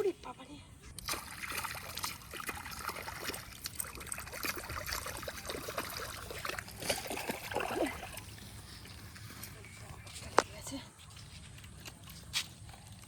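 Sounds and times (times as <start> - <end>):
muddy water splashing: 0.9 - 10.0.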